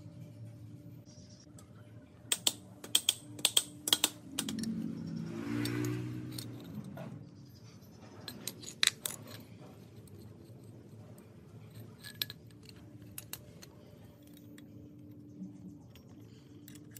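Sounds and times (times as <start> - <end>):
low hum: 0.0 - 16.9
metal parts clinking: 2.3 - 4.9, 5.6 - 7.0, 7.6 - 15.0, 15.8 - 16.9.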